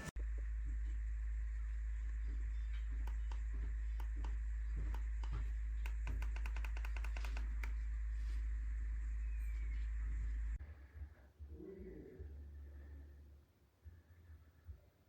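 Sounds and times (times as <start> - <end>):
low electrical hum: 0.0 - 15.0
sharp clicks: 2.1 - 7.8.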